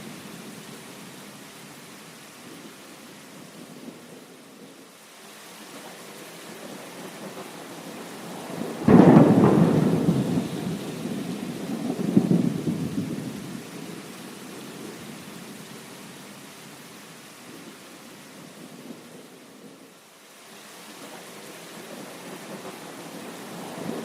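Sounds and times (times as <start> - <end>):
steady rain: 0.0 - 24.0
thunder rumbling: 6.5 - 14.0.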